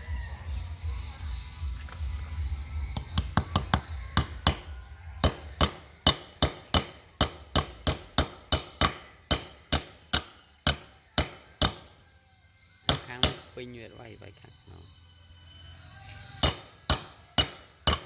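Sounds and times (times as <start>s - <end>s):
hammer striking metal: 3.0s - 12.0s, 12.9s - 13.7s, 16.4s - 18.0s.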